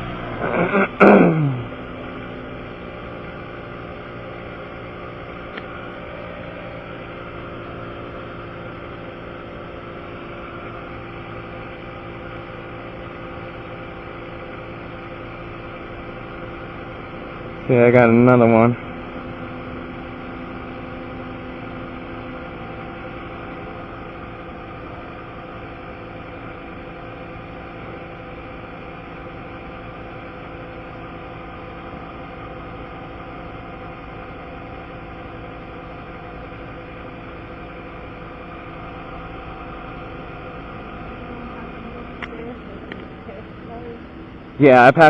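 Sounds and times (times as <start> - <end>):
engine droning steadily: 0.0 - 45.0.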